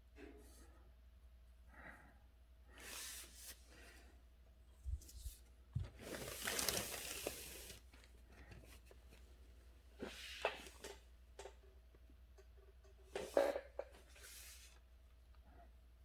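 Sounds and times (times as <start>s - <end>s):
paper rustling: 4.9s - 9.0s.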